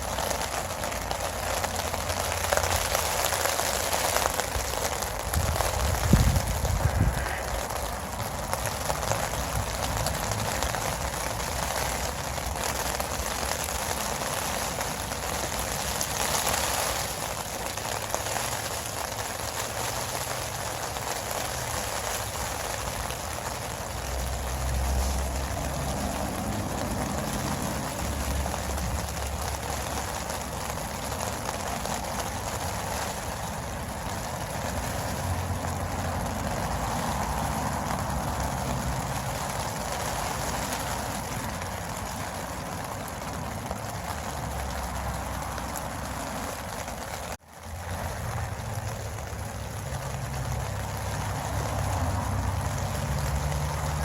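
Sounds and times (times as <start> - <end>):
heavy rain: 0.0 - 54.0
low thunder rumbles: 5.2 - 10.5.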